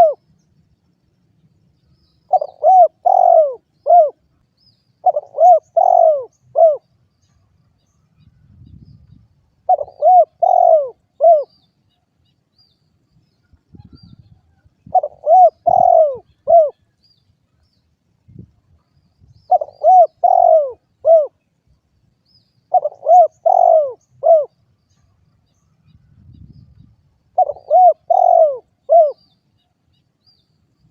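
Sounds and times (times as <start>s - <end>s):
dove cooing: 0.0s - 0.2s, 2.3s - 4.2s, 5.0s - 6.9s, 9.7s - 11.6s, 13.8s - 16.9s, 19.5s - 21.4s, 22.7s - 24.6s, 27.3s - 29.3s.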